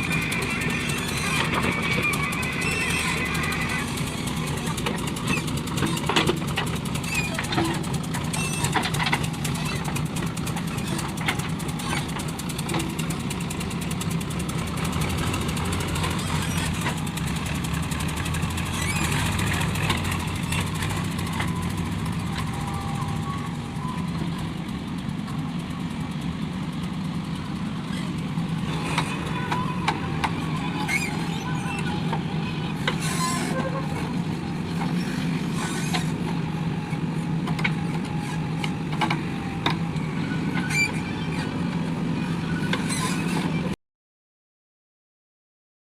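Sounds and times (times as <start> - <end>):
diesel engines droning: 0.0 - 43.8
sharp knocks and clatter: 0.3 - 22.6.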